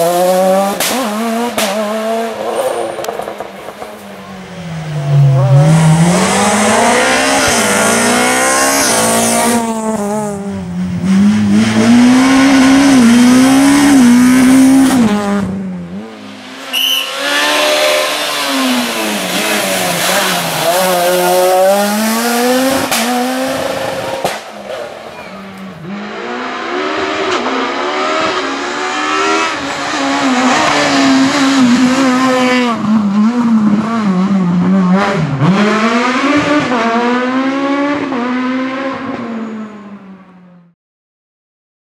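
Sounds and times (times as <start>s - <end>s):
rally car engines at full throttle: 0.0s - 40.8s
tyre squeal: 16.6s - 21.5s.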